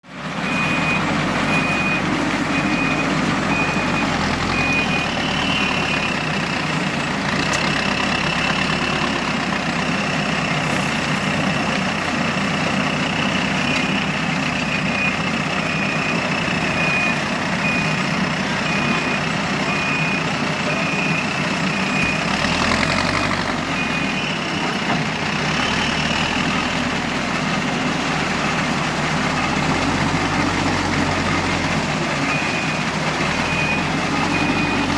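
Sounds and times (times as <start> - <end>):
diesel backhoe loader working: 0.0 - 34.9
reversing alarm beeps: 0.4 - 11.9, 12.6 - 24.9, 32.2 - 34.9.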